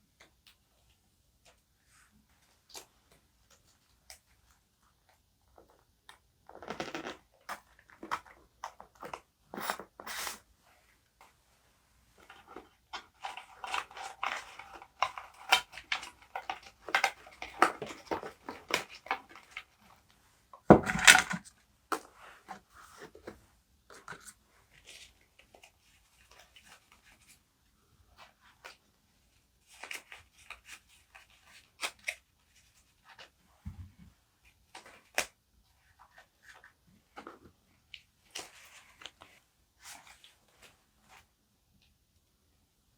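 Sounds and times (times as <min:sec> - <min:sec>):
paper rustling and crinkling: 0:20.7 - 0:21.5.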